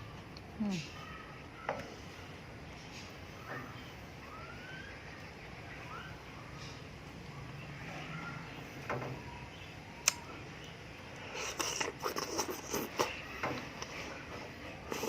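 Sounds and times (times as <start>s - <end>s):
mouth clicks and smacks: 10.0s - 10.2s, 11.2s - 13.2s
person chewing: 11.2s - 13.2s.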